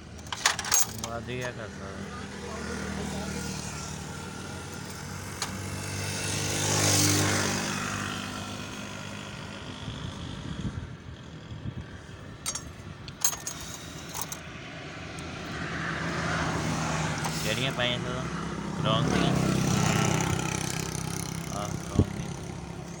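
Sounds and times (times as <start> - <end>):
motor vehicle passing: 1.0 - 23.0
sharp metallic clinks: 12.4 - 14.4.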